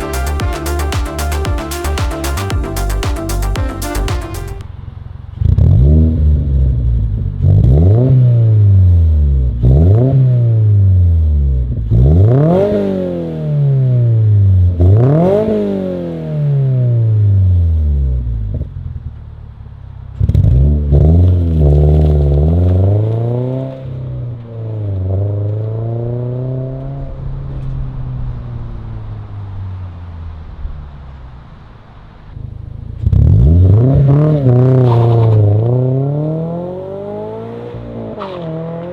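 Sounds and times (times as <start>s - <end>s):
car engine revving: 5.5s - 17.6s, 31.9s - 38.9s.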